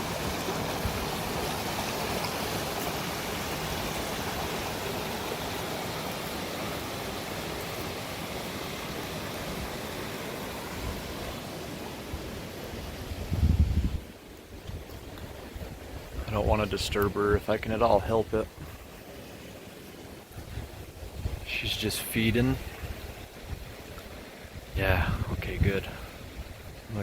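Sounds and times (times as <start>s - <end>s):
stream flowing: 0.0s - 27.0s.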